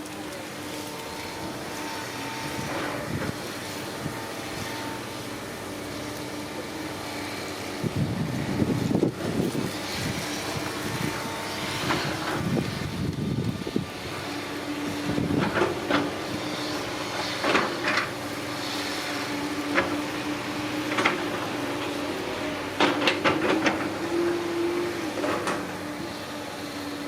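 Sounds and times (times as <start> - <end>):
excavator engine and hydraulic hum: 0.0 - 27.0.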